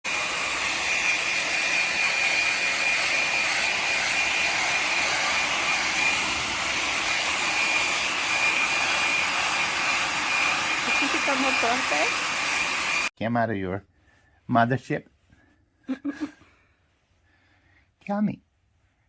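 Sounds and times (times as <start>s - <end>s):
hair dryer blowing: 0.0s - 13.1s.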